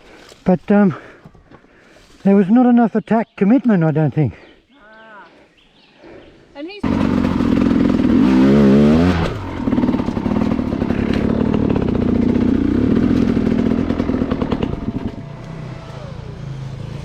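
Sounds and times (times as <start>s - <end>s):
dirt bike engine revving: 6.8s - 17.0s.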